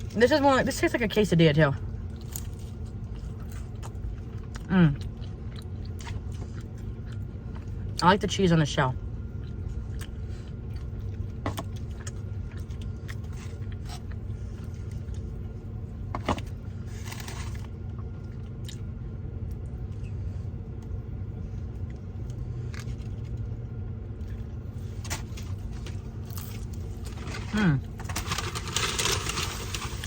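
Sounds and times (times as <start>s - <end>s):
crunching hard taco: 16.0s - 19.8s, 21.9s - 30.0s.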